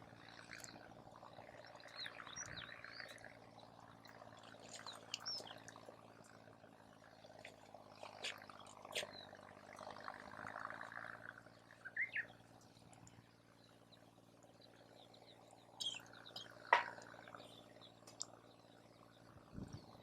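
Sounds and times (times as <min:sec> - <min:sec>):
burning wood popping: 0:16.7 - 0:17.2.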